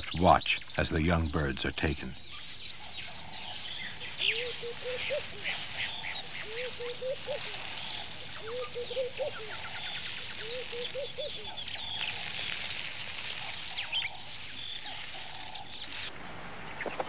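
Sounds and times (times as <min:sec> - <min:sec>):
birds chirping and whistling: 0:00.0 - 0:17.0
low rising bird call: 0:02.2 - 0:12.4.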